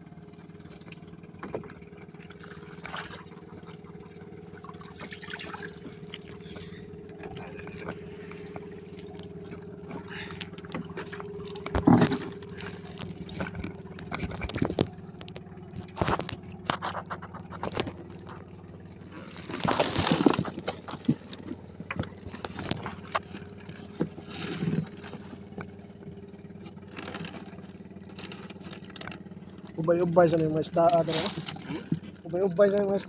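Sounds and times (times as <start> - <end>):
boat engine humming: 0.0 - 33.0
gear scraping on deck: 7.4 - 25.6.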